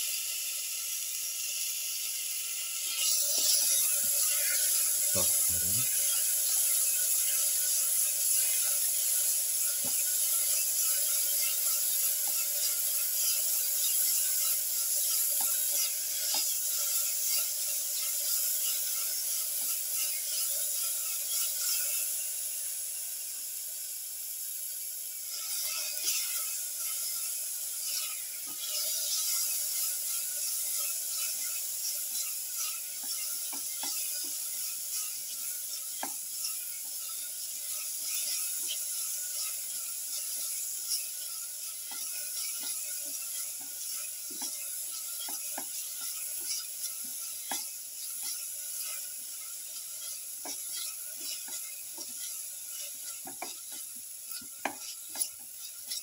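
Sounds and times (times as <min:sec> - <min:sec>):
food sizzling in oil: 0:00.0 - 0:56.0
spatula knocking pan: 0:30.8 - 0:35.0, 0:41.8 - 0:56.0.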